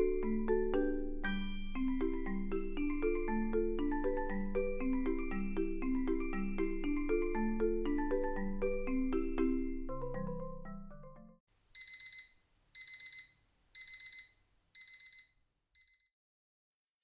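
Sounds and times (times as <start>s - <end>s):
mallet percussion tune: 0.0s - 11.0s
alarm clock beeping: 11.8s - 16.1s.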